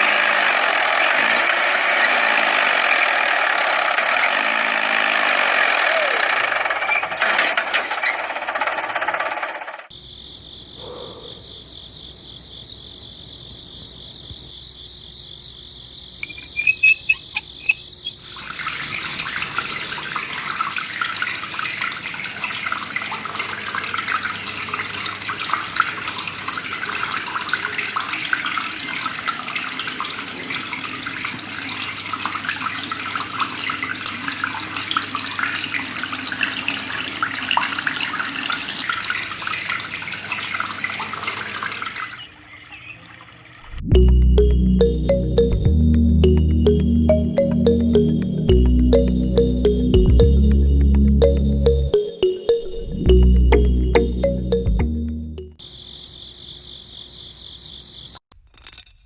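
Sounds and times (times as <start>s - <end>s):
water gushing and splashing: 18.2s - 43.8s.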